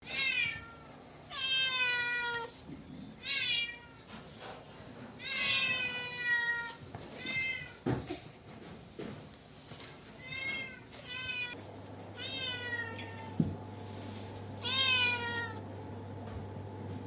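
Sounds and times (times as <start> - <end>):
cat meowing: 0.0 - 2.5, 5.2 - 7.8, 10.2 - 11.6, 12.2 - 13.5, 14.6 - 15.6.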